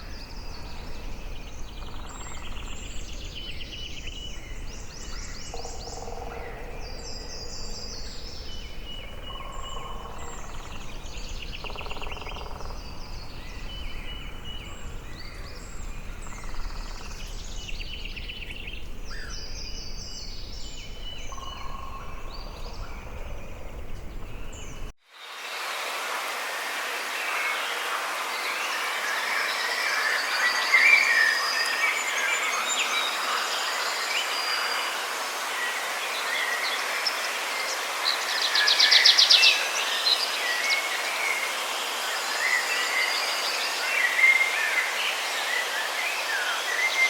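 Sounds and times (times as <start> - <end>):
steady background hiss: 0.0 - 47.0
rain hissing: 22.1 - 47.0.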